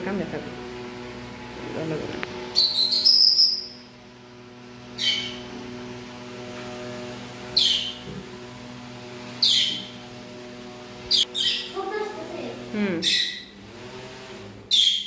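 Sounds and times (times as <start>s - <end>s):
parrot calling: 2.6s - 3.9s, 5.0s - 5.4s, 7.6s - 8.0s, 9.4s - 10.0s, 11.1s - 11.8s, 12.9s - 13.6s, 14.7s - 15.0s.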